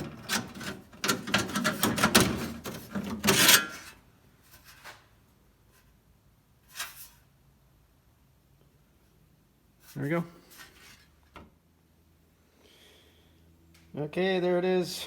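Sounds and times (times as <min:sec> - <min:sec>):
sheet metal clattering and knocking: 0:00.0 - 0:03.7.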